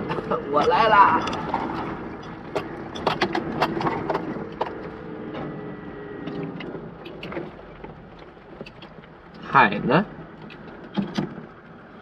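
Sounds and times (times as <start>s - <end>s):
sharp knocks and clicks: 0.0s - 5.5s, 6.3s - 9.2s, 10.4s - 11.6s.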